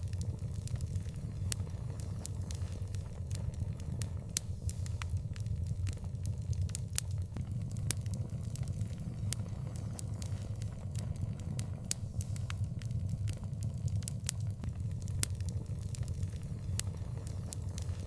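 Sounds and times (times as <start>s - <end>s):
wood fire crackling: 7.4s - 15.2s.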